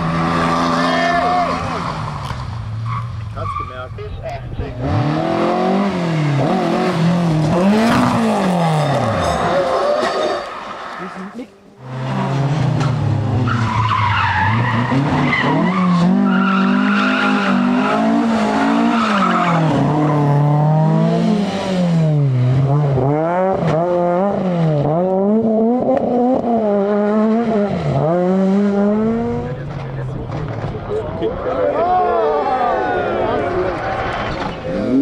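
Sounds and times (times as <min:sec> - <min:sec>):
tyres skidding: 0:00.0 - 0:35.0
rally car engine at high revs: 0:04.6 - 0:10.7, 0:11.8 - 0:31.1, 0:33.8 - 0:35.0.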